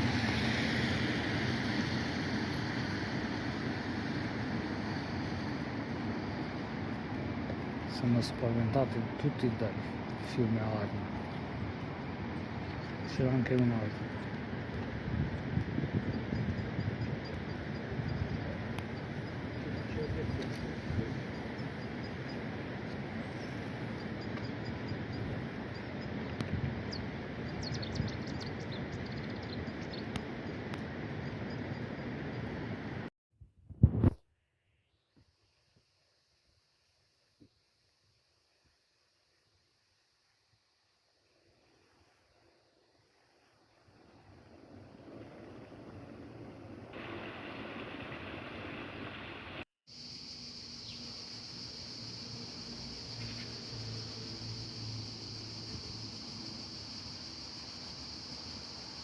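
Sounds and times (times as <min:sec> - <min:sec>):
steady high hiss: 0:00.0 - 0:33.1, 0:34.8 - 0:59.0
steady rushing noise: 0:00.0 - 0:33.1
small birds chirping: 0:23.2 - 0:30.2.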